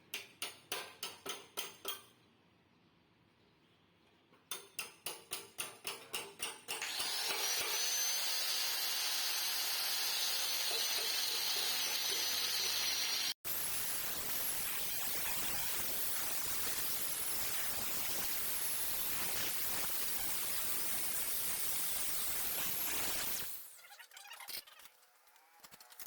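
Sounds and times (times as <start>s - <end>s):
power tool grinding: 6.8s - 13.4s.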